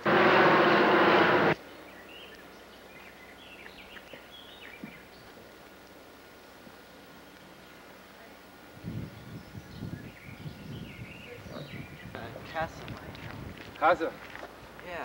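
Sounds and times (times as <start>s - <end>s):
loud burst of noise: 0.0s - 1.6s.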